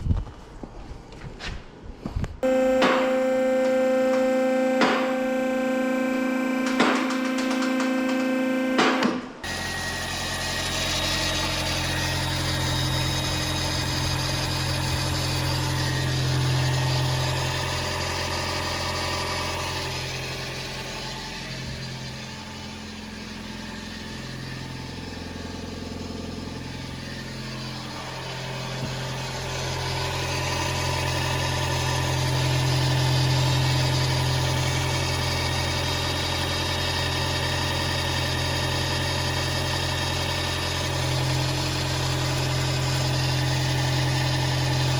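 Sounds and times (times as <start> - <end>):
car engine idling: 9.9 - 44.9.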